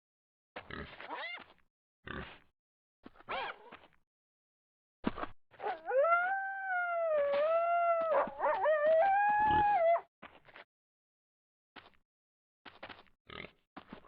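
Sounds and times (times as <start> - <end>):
wavering animal howl: 5.6 - 10.1.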